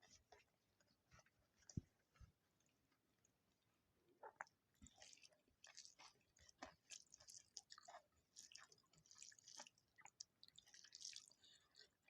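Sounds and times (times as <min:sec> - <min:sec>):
chewing with wet mouth smacks: 0:04.2 - 0:12.0.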